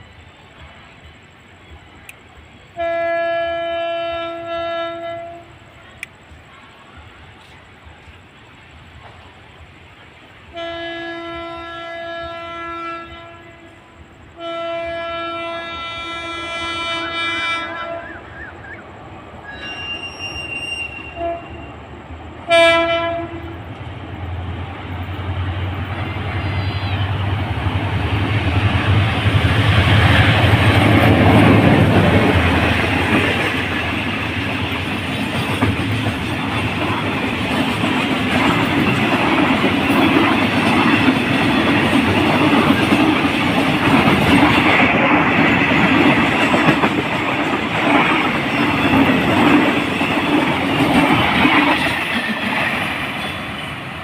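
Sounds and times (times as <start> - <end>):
train rumbling and clattering past: 0.0 - 54.0
train horn blasts: 2.7 - 5.8, 10.5 - 18.9, 19.5 - 21.8, 22.4 - 23.7, 26.3 - 27.2.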